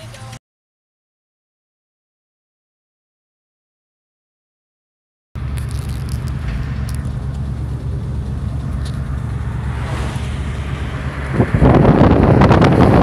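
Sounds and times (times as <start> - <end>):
car engine low rumble: 0.0 - 0.4, 5.4 - 13.0.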